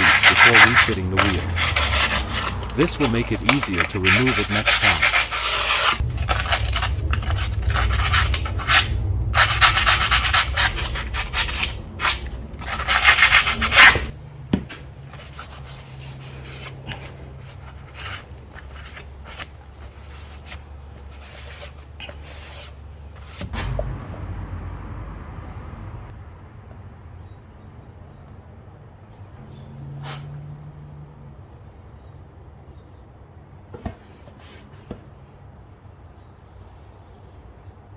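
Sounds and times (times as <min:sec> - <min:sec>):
scrubbing on metal: 0:00.0 - 0:24.4
low steady hum: 0:04.6 - 0:26.6.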